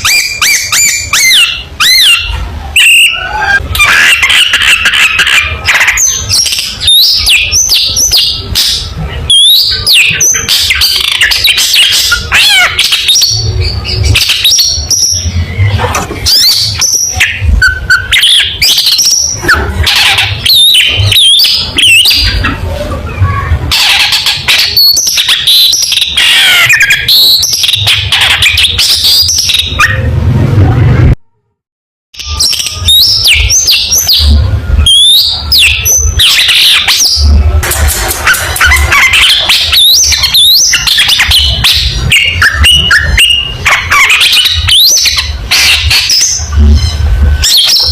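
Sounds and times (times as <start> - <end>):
shrike singing harsh chatters: 0.0 - 30.1, 32.2 - 47.9
low rumble: 30.0 - 31.5.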